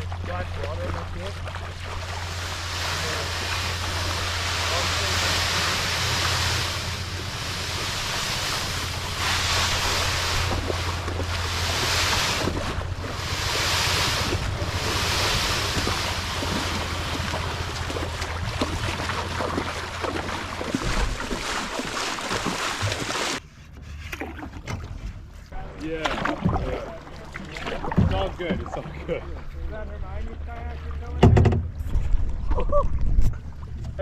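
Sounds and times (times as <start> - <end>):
low rumble: 0.0 - 23.0
creek water rushing and splashing: 0.0 - 23.4
wind buffeting microphone: 2.0 - 21.5.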